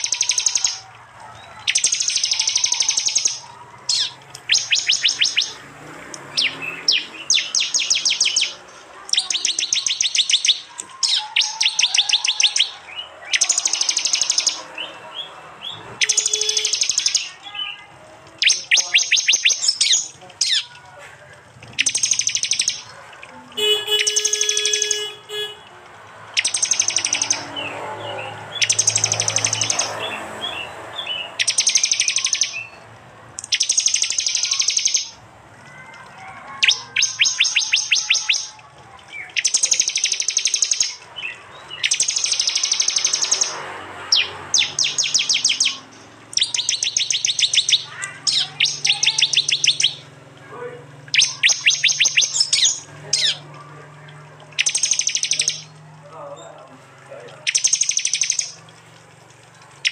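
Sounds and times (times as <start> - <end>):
bird sharp repeated call: 0.0 - 5.6, 6.3 - 14.9, 15.6 - 17.8, 18.4 - 20.7, 23.6 - 25.6, 33.4 - 38.6, 39.3 - 41.0, 41.7 - 50.1, 51.1 - 53.4, 57.4 - 58.6.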